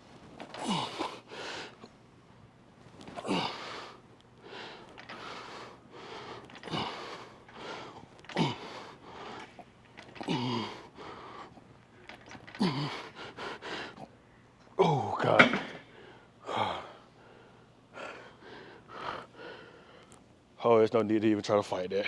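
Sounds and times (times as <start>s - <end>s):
man grunting: 10.2s - 10.8s, 14.8s - 15.4s.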